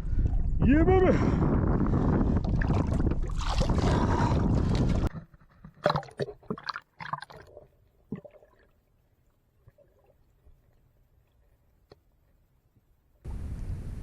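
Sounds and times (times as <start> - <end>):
wind rushing over microphone: 0.0 - 5.1
water noise from boat: 1.9 - 13.8
short splashes: 2.4 - 8.7.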